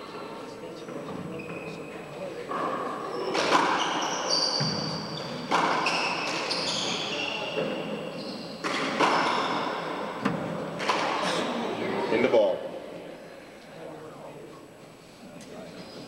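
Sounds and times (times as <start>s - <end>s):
shoes squeaking on wooden floor: 0.8s - 11.4s.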